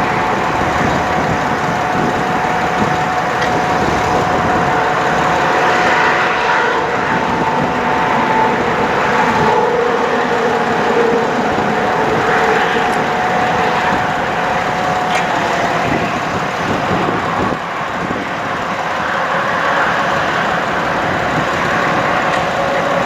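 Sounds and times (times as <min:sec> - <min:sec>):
steady whine: 0:00.0 - 0:23.0
truck engine idling: 0:00.0 - 0:23.0.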